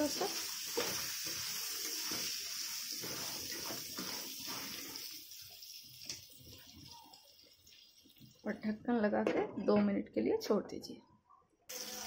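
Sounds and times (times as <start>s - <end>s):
vegetables sizzling in oil: 0.0s - 6.7s, 11.7s - 12.0s
spatula stirring and scraping: 0.6s - 5.2s.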